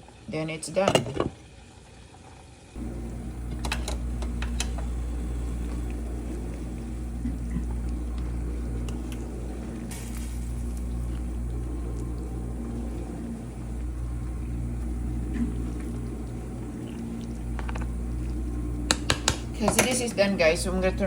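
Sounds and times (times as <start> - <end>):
soup bubbling in pot: 2.8 - 19.9
low hum: 2.8 - 21.0.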